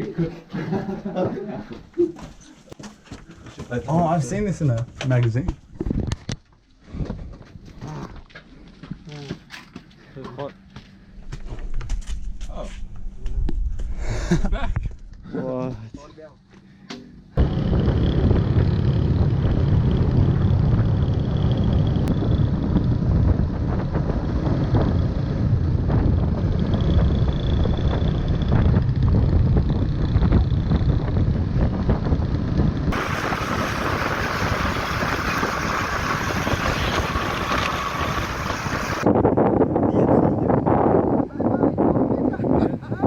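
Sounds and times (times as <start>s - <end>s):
motorbike engine and road rumble: 17.4s - 39.1s
wind buffeting microphone: 17.4s - 43.0s.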